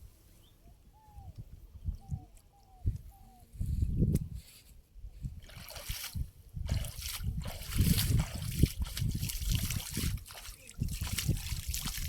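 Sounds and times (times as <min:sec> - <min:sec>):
water splashing and trickling: 0:05.4 - 0:12.0.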